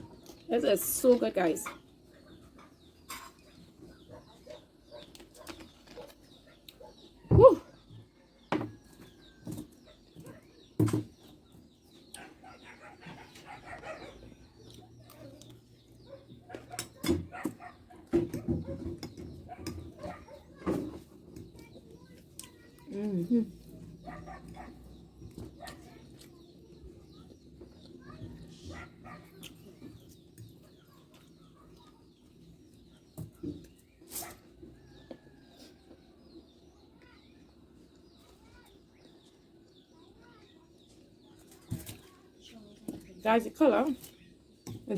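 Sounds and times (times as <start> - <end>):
small birds chirping: 0.0 - 44.9.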